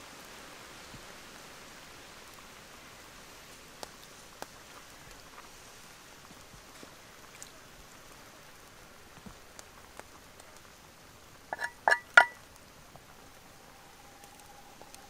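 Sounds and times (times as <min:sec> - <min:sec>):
patter of small ticks: 0:02.1 - 0:15.0
cookware clinking: 0:11.5 - 0:12.4.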